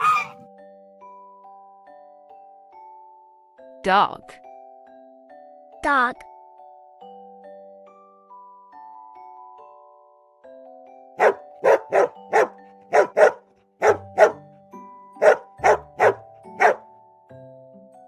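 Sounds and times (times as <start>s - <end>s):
dog barking: 11.2s - 14.4s, 15.2s - 16.9s.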